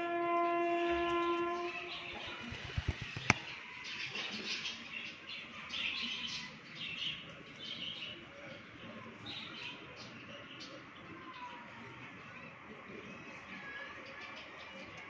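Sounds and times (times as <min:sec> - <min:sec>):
birds chirping: 0:01.5 - 0:11.3.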